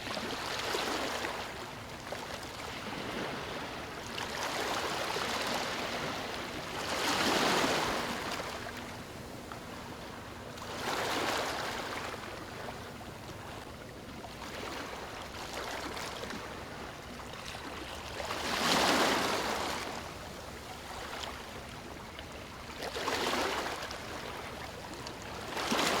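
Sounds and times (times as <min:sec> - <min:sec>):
small waves breaking on beach: 0:00.0 - 0:08.9, 0:17.4 - 0:20.0.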